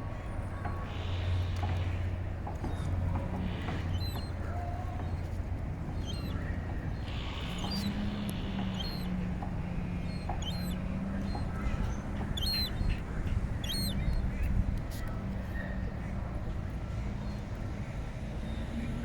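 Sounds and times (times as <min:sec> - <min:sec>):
short high bird calls: 0:06.0 - 0:09.2, 0:10.0 - 0:13.0, 0:13.6 - 0:14.2.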